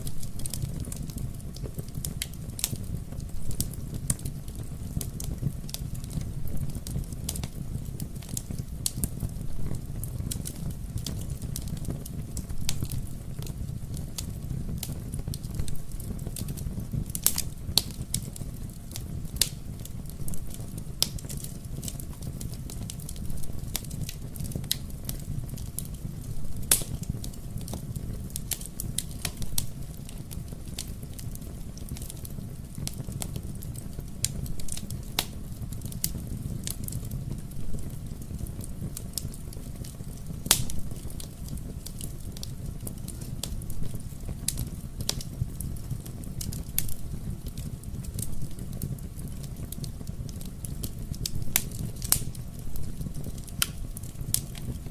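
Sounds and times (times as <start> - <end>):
fire popping and snapping: 0.0 - 54.9
fire rumbling in fireplace: 0.0 - 54.9.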